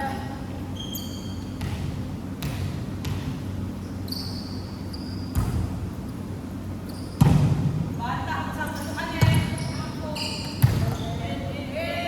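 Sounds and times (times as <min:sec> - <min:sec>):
short high squeak: 0:00.8 - 0:01.5, 0:04.1 - 0:05.3
basketball bouncing on floor: 0:01.6 - 0:03.4, 0:05.3 - 0:05.8, 0:07.2 - 0:07.8, 0:09.1 - 0:09.7, 0:10.4 - 0:11.2.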